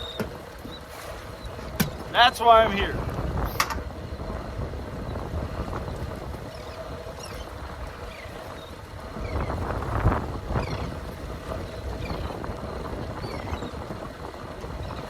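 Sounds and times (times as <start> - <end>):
rush of water and knocking: 0.0 - 3.9
water sloshing against hull: 0.0 - 15.0
wind buffeting microphone: 0.0 - 15.0.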